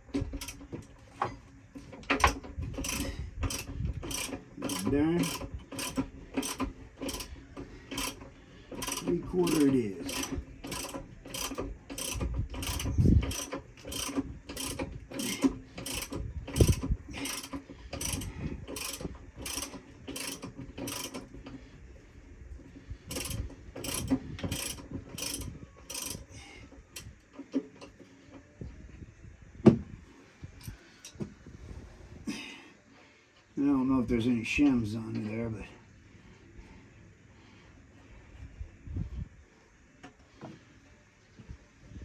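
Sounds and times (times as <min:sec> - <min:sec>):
ratchet wrench clicking: 0:00.2 - 0:00.7, 0:02.0 - 0:21.4, 0:23.1 - 0:26.3.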